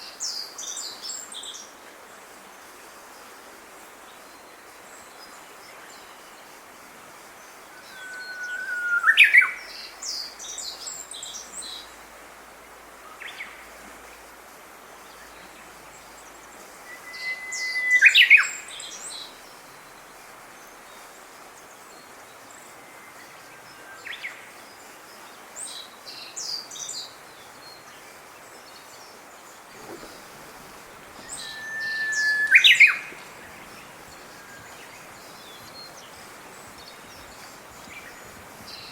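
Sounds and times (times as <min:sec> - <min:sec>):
steady background hiss: 0:00.0 - 0:38.9
bird whistling song: 0:07.7 - 0:09.6, 0:16.8 - 0:18.8, 0:29.7 - 0:38.9
small birds twittering: 0:28.7 - 0:38.9.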